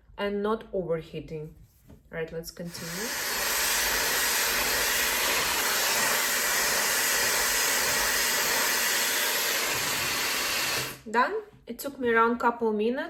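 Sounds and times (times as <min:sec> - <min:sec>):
hair dryer blowing: 0:02.7 - 0:11.1.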